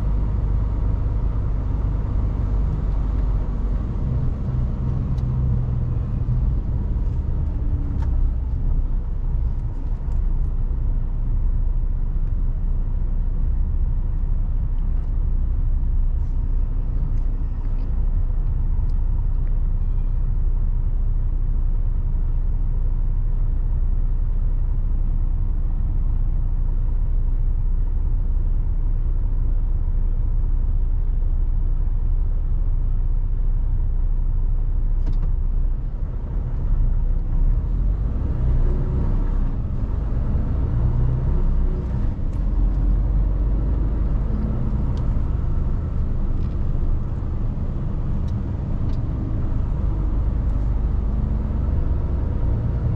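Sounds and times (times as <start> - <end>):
truck diesel engine driving: 0.0 - 23.8, 35.1 - 52.9.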